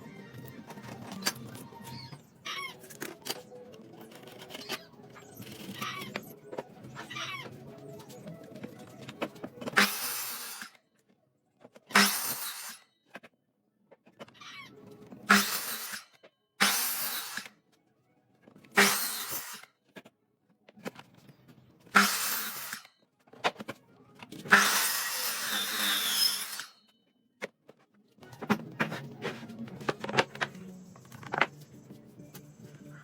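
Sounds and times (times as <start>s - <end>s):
power tool bursts: 9.8s - 10.7s, 11.9s - 12.8s, 15.3s - 16.0s, 18.8s - 19.6s, 22.0s - 22.9s, 24.5s - 26.8s.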